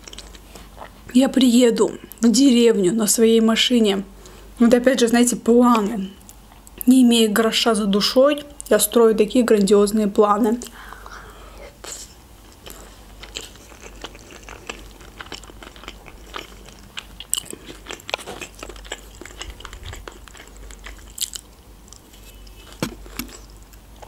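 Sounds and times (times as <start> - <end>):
person chewing close up: 0.0 - 1.1, 12.4 - 24.0.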